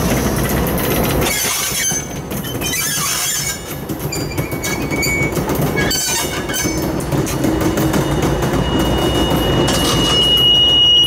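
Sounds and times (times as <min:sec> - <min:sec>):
train wheels squealing: 0:01.2 - 0:11.0.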